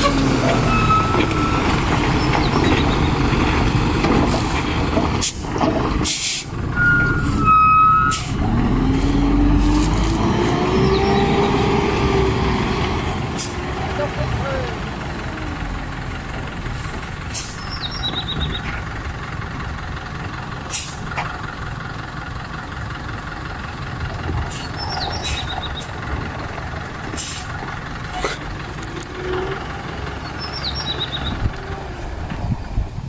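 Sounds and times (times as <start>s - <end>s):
truck engine rumble: 0.0s - 33.0s
short sharp air hisses: 6.0s - 6.5s.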